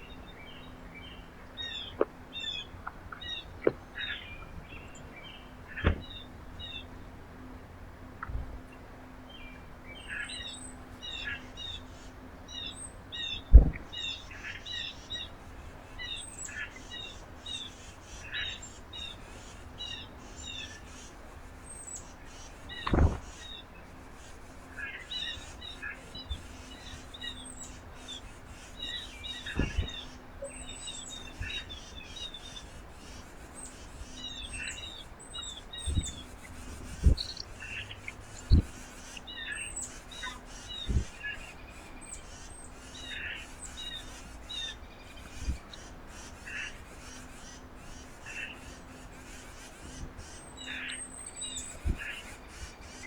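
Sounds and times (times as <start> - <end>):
small birds chirping: 0.0 - 53.0
dull low thumps: 13.5 - 14.0.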